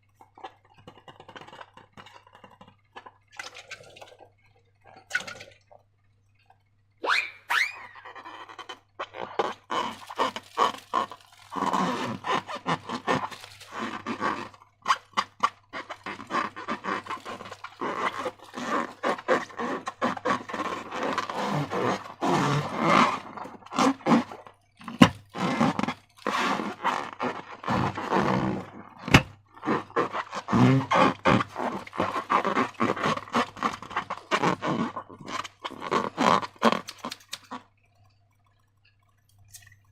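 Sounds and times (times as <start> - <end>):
slime squelching: 7.1 - 37.8.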